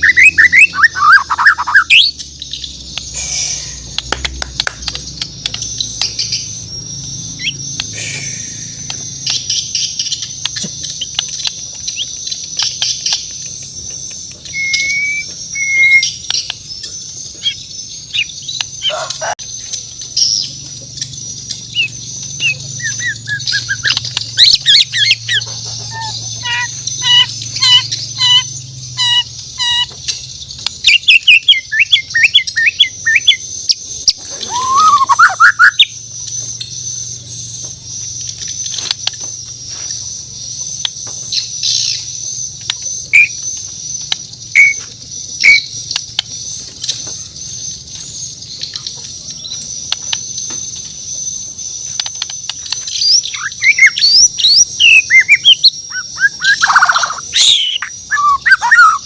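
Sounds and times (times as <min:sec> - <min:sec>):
bird singing whistled notes: 0:00.0 - 0:18.8, 0:19.6 - 0:59.0
sharp clicks: 0:03.8 - 0:06.4, 0:08.8 - 0:17.0.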